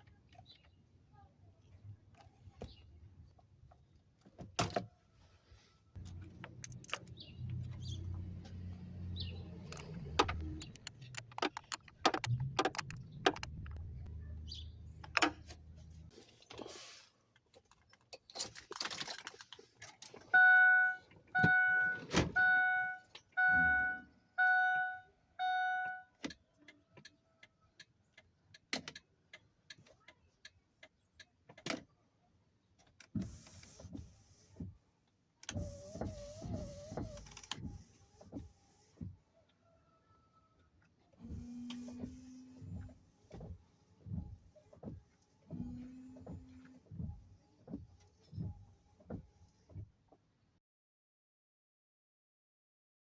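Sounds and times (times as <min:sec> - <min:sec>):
scattered clicks: 0:09.6 - 0:13.9
keys jangling: 0:18.3 - 0:20.1.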